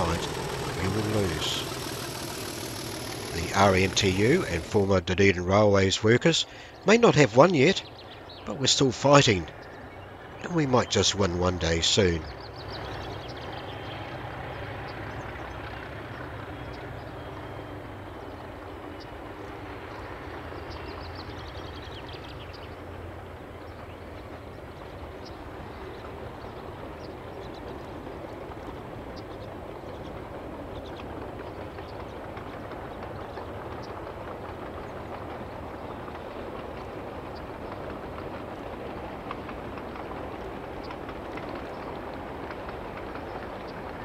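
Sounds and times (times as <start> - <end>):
train engine and wheels rumbling: 0.0 - 44.0.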